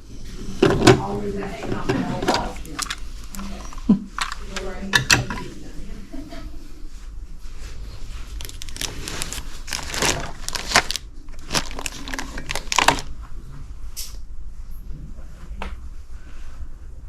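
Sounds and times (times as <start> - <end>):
paper rustling and crinkling: 1.6 - 5.5, 7.7 - 13.1.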